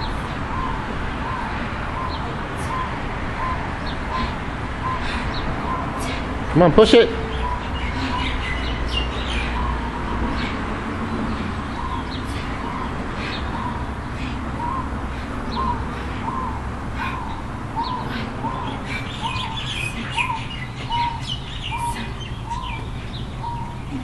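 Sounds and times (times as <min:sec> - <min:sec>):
low background rumble: 0:00.0 - 0:06.6
higher bird chirps: 0:00.0 - 0:24.0.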